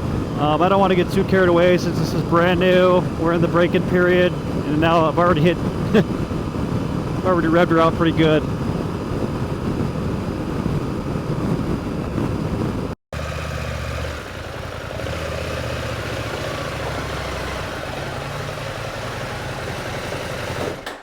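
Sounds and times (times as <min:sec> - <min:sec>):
wind noise: 0:00.0 - 0:13.0
motorcycle engine running: 0:00.0 - 0:21.0.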